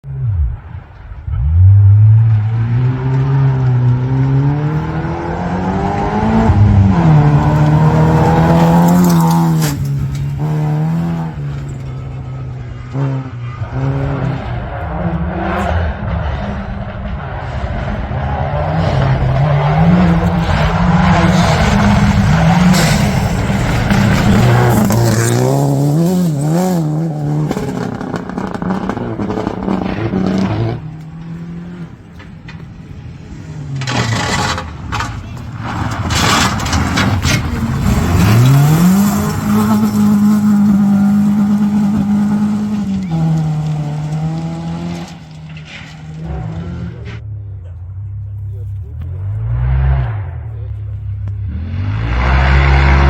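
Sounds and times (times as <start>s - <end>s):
gravel and tyre noise: 0.0s - 53.0s
rally car engines revving: 0.0s - 53.0s.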